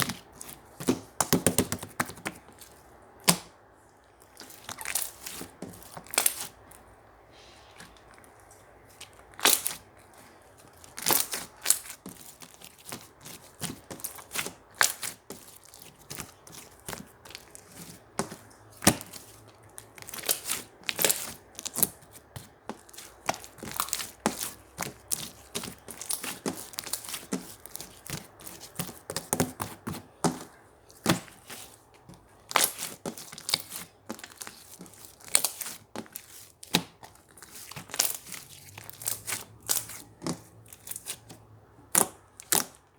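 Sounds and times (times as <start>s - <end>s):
slime popping and crackling: 4.3s - 6.7s, 9.0s - 10.0s, 10.8s - 30.4s, 32.4s - 41.3s, 41.9s - 42.8s.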